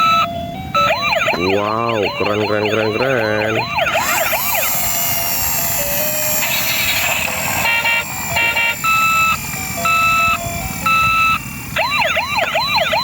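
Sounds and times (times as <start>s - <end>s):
electronic siren tones: 0.0s - 13.0s.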